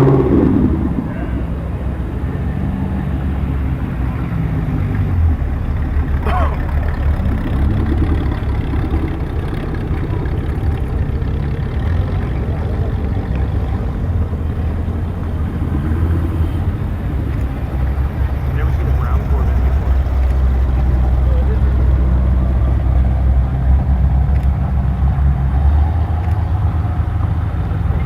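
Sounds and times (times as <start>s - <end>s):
car engines driving past: 0.0s - 28.0s.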